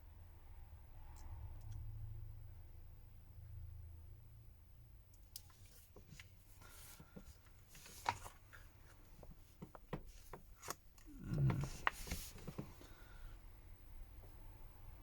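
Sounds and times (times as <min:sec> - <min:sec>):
faint small clicks: 0:01.1 - 0:01.9
light scratchy rubbing: 0:10.1 - 0:12.9.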